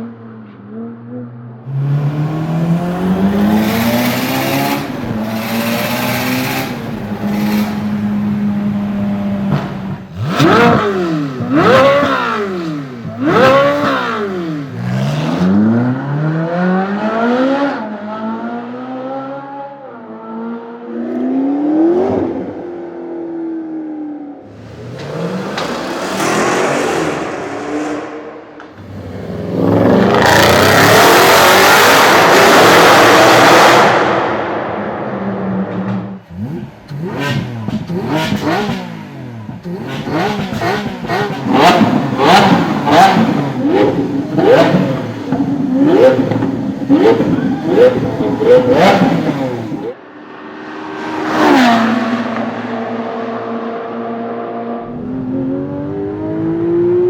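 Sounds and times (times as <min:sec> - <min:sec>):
car engine revving: 0:00.7 - 0:19.7, 0:24.3 - 0:57.0
loud rush: 0:24.5 - 0:36.6.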